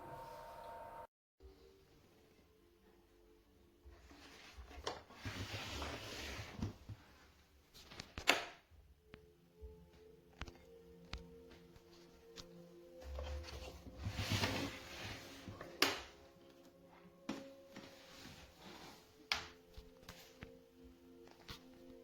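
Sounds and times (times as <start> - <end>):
low steady hum: 0.0 - 1.1.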